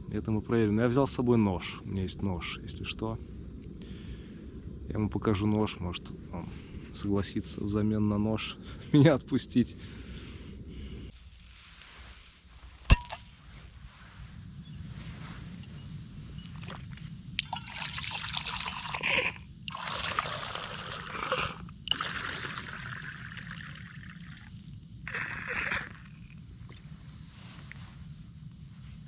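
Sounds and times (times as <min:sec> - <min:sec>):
tea pouring: 0:17.4 - 0:26.4.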